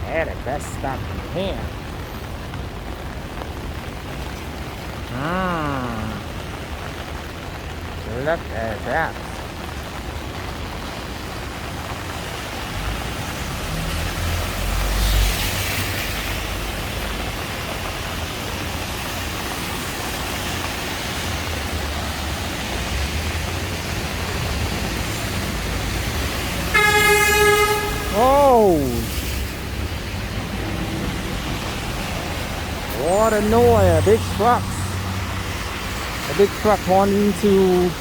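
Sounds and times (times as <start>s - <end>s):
traffic on wet street: 0.0s - 38.0s
vehicle horn blast: 26.7s - 28.2s.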